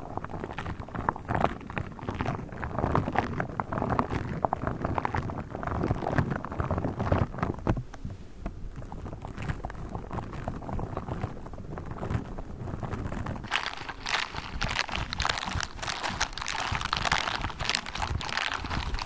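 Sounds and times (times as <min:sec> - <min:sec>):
low rumble: 0:13.5 - 0:19.0
toy handling crackles and taps: 0:13.5 - 0:19.0.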